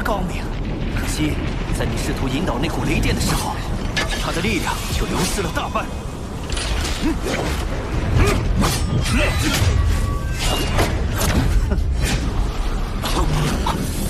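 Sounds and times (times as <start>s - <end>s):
heavy low rumble: 0.0s - 10.2s
sharp crackles and impacts: 0.0s - 14.0s.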